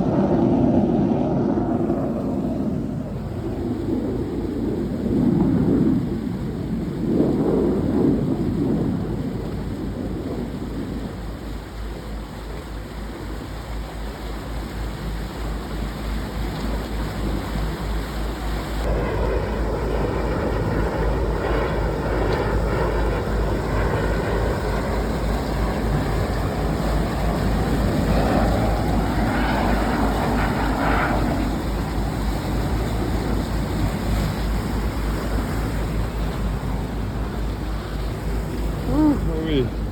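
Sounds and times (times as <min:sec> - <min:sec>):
wind on microphone: 0:00.0 - 0:39.9
boat engine running under load: 0:10.4 - 0:39.9.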